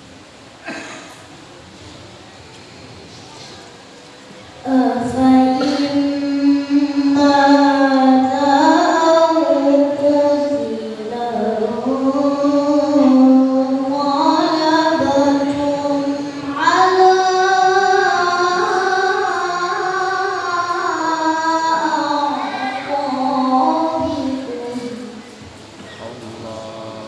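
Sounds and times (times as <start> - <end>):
man chanting recitation: 25.9 - 27.0.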